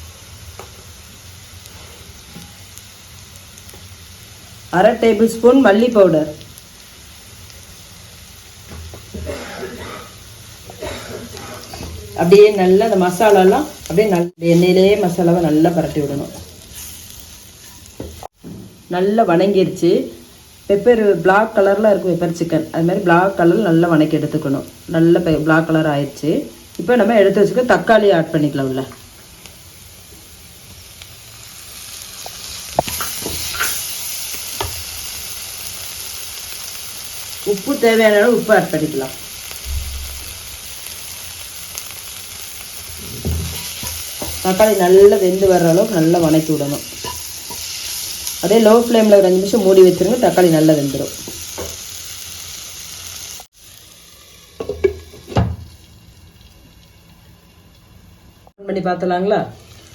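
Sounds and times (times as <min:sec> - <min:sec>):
oil sizzling in a frying pan: 0:00.0 - 0:59.9
knocks against a pan: 0:54.6 - 0:55.7.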